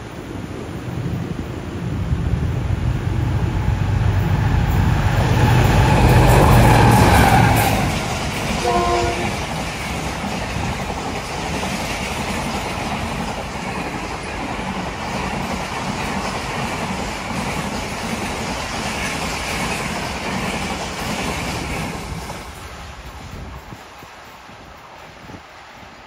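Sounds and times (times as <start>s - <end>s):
train passing at speed: 0.0s - 26.0s.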